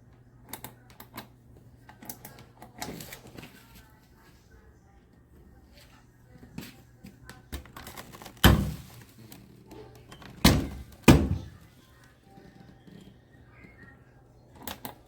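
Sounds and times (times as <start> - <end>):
loud thunks: 8.4 - 9.0, 10.4 - 11.6.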